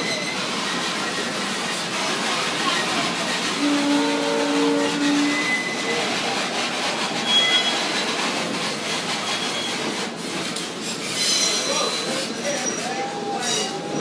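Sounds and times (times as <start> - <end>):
high wheel squeals: 0.0 - 1.9, 2.6 - 6.2, 7.1 - 8.1, 9.1 - 10.0, 10.8 - 14.0
train coaches rumbling: 0.0 - 14.0.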